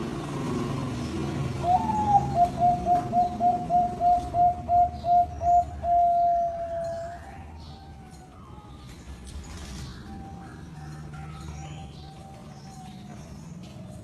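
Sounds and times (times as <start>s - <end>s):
dove cooing: 0.9s - 8.2s.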